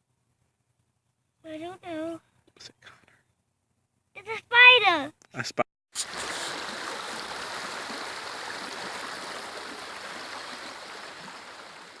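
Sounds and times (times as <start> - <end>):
stream water rushing: 6.0 - 12.0.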